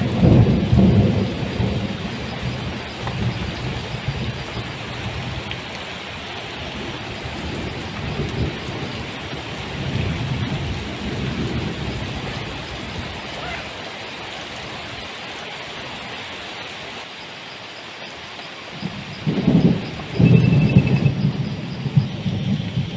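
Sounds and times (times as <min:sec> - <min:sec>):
thunder rumbling: 0:00.0 - 0:13.7, 0:18.8 - 0:22.9
heavy rain pouring: 0:00.0 - 0:22.9.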